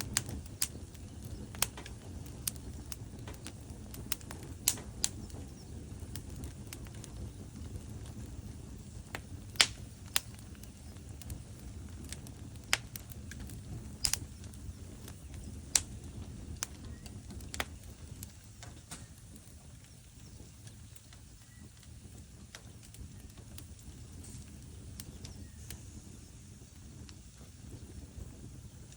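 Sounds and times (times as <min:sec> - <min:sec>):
fireplace logs crackling: 0:00.0 - 0:28.9.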